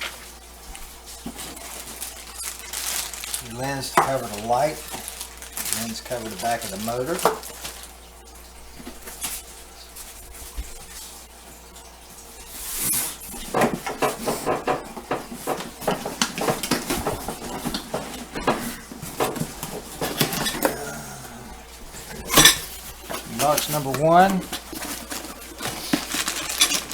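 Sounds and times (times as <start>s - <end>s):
packaging rustling: 0.0s - 8.1s, 15.3s - 20.8s, 21.7s - 26.9s
clicks knocks and clatter of parts: 13.4s - 20.7s, 22.3s - 26.9s.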